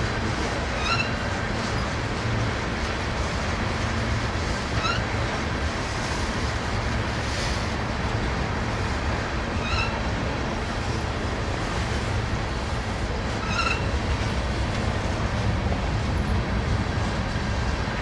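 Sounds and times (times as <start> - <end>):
freight cars rumbling on rails: 0.0 - 18.0
high wheel squeaks: 13.4 - 14.0.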